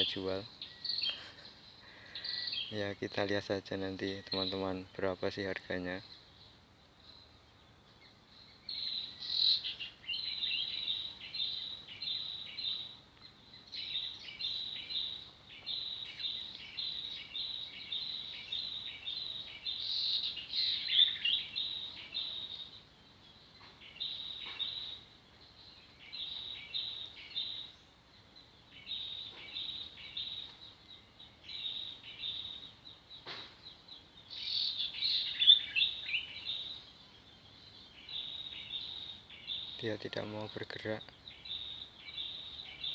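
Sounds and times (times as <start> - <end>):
bird chirping: 0.0 - 42.9.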